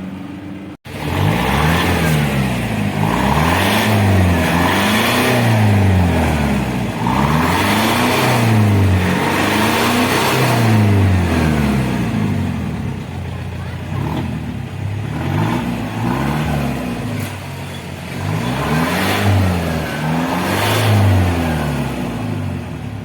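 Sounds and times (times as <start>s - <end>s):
diesel engine revving: 0.0s - 23.0s.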